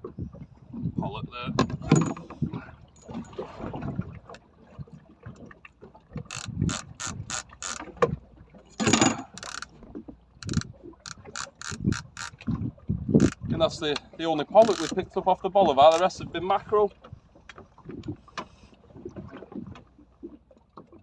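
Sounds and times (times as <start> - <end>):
fishing reel ratchet clicking: 6.3 - 7.8, 9.0 - 9.7, 10.4 - 12.4, 13.2 - 13.4, 14.6 - 15.0.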